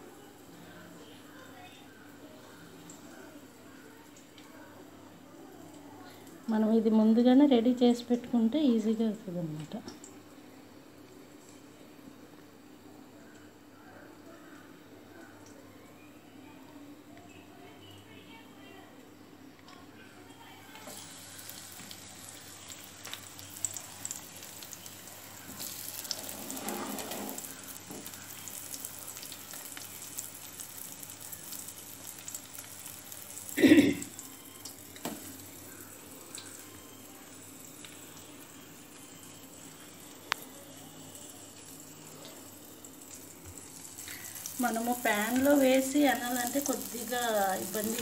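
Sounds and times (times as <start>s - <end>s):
potatoes sizzling in hot oil: 20.7s - 48.0s.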